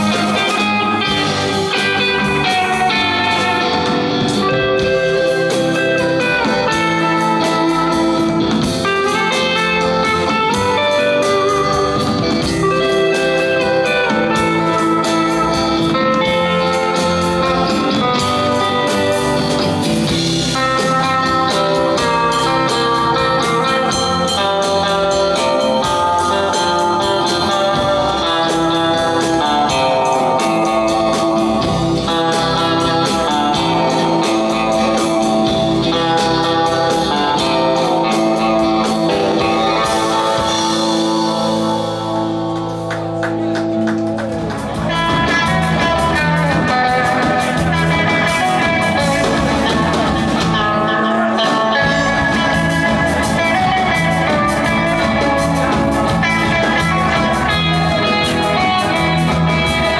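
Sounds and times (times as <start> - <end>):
electric guitar: 0.0 - 59.9
steady drum beat: 0.0 - 59.9.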